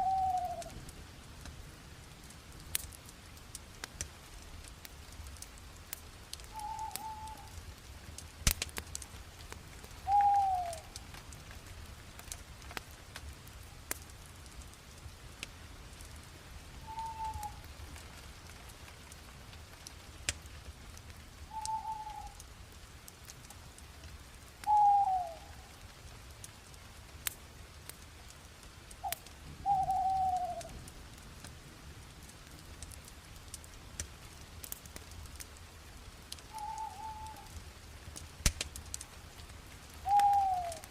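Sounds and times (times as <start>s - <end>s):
bird calling: 0.0s - 0.7s, 6.6s - 7.5s, 10.1s - 10.9s, 16.9s - 17.6s, 21.5s - 22.4s, 24.7s - 25.5s, 29.0s - 30.7s, 36.5s - 37.5s, 40.0s - 40.9s
bonfire crackling and popping: 0.0s - 40.9s.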